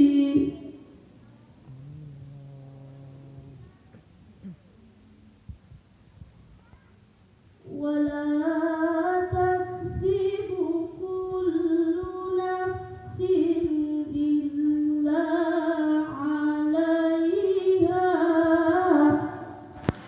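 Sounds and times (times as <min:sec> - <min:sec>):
woman reciting melodically: 0:00.0 - 0:01.4, 0:07.6 - 0:19.7.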